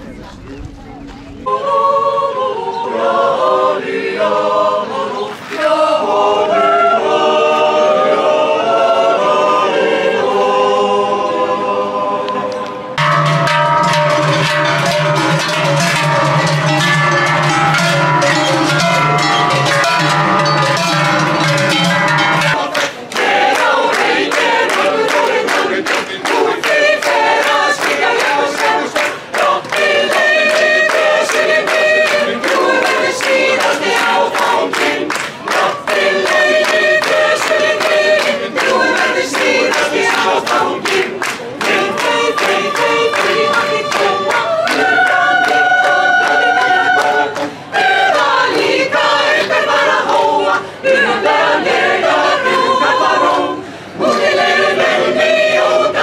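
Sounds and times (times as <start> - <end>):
choir singing in harmony: 1.3 - 56.0
sharp percussive strikes: 13.0 - 50.5.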